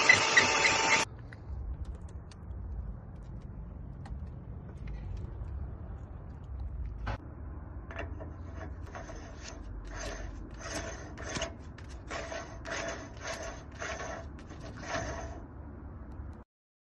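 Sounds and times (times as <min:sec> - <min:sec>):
steady low rumble: 0:01.1 - 0:16.4
hand tool rasping on metal: 0:07.9 - 0:15.4.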